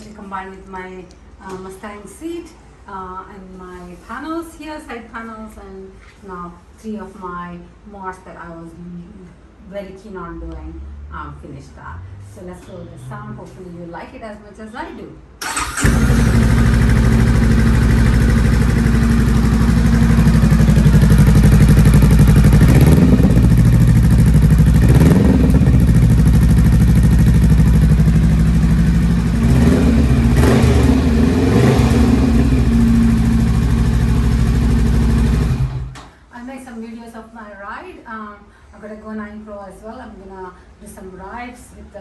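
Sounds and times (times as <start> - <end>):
motorcycle engine idling and revving: 15.4 - 36.0.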